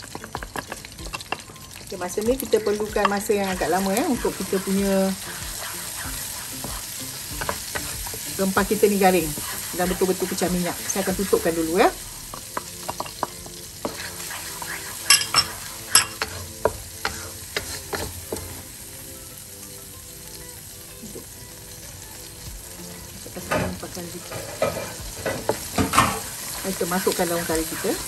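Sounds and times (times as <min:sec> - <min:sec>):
spice paste frying in pan: 0:00.0 - 0:28.0
wooden spatula scraping pan: 0:03.8 - 0:10.6, 0:13.8 - 0:18.6.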